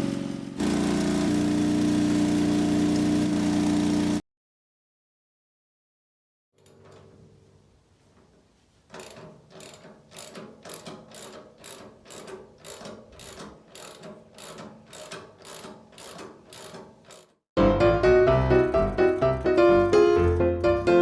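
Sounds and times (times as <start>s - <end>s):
mechanical ratcheting clicks: 8.9s - 17.4s, 18.4s - 21.0s.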